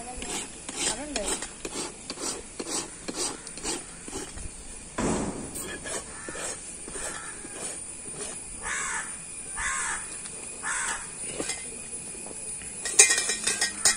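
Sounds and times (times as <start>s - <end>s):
bird calling: 5.2s - 7.8s, 8.6s - 11.2s.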